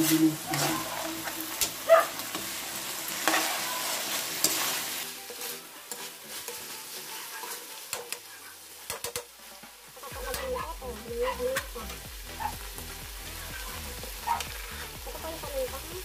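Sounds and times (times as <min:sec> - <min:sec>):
metal spatula scraping a pan: 0:00.0 - 0:10.6
meat sizzling in a wok: 0:00.0 - 0:16.0.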